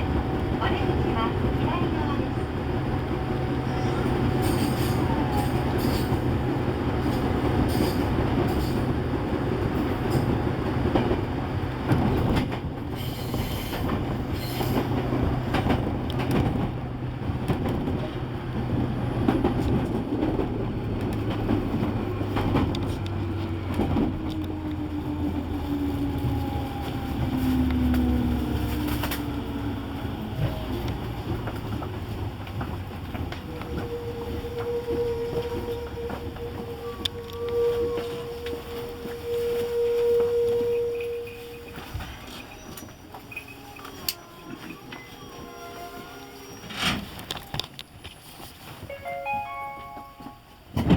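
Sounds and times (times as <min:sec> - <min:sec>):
train rumble and hum: 0:00.0 - 0:50.9
wheel squeal: 0:33.8 - 0:47.6.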